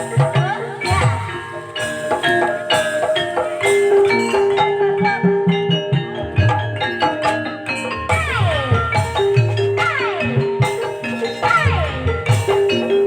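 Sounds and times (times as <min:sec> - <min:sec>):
drum strokes: 0:00.0 - 0:13.0
metallophones ringing: 0:00.0 - 0:13.0.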